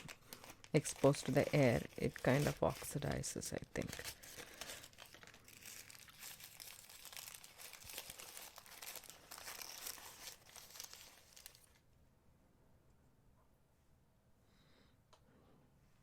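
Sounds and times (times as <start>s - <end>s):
paper wrapping rustling: 0.0s - 11.8s
plastic bag crinkling: 0.0s - 11.8s.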